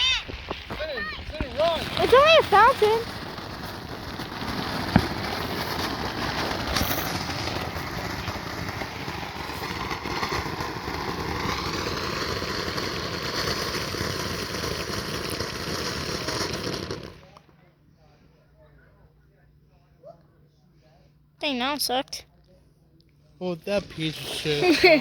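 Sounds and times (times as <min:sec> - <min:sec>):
firework fountain hissing: 0:00.0 - 0:17.4, 0:23.4 - 0:25.0
firework pop: 0:03.2 - 0:11.8.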